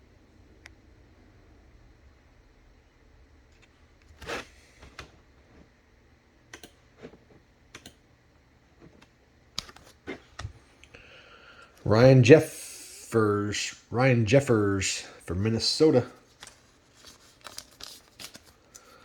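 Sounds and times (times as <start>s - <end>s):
trading cards and plastic holders clicking: 9.6s - 10.5s.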